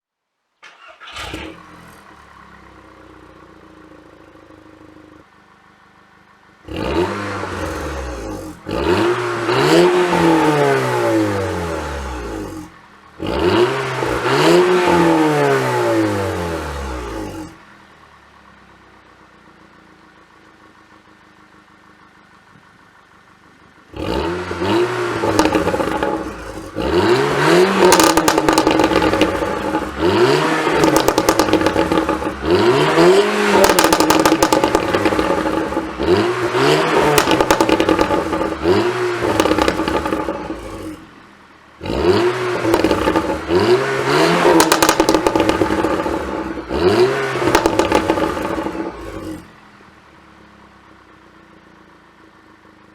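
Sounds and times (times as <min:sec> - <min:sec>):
car engine revving: 0:00.6 - 0:05.6, 0:06.5 - 0:18.7, 0:23.8 - 0:50.2
exhaust crackles and pops: 0:23.5 - 0:41.0, 0:41.8 - 0:49.4.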